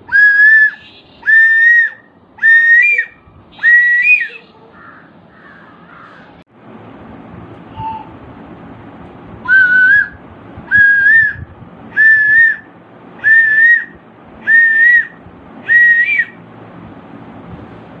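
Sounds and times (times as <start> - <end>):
bird whistling: 0.1 - 5.0, 7.7 - 8.1, 9.5 - 16.4.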